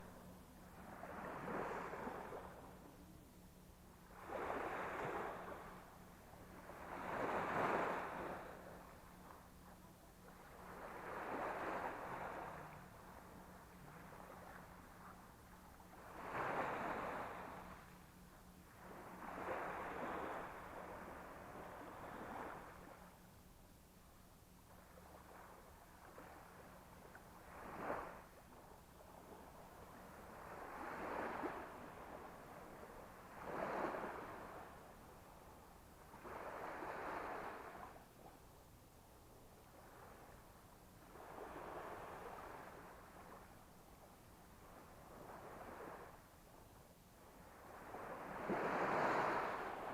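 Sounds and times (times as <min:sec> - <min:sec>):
sea waves breaking on beach: 0:00.8 - 0:02.8, 0:04.1 - 0:09.4, 0:10.2 - 0:18.0, 0:18.7 - 0:23.1, 0:27.4 - 0:28.6, 0:29.2 - 0:34.9, 0:36.1 - 0:38.0, 0:47.4 - 0:49.9.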